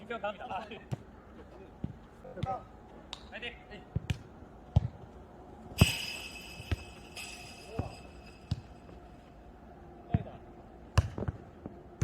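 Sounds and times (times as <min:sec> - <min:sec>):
high ringing tone: 0:05.8 - 0:09.5.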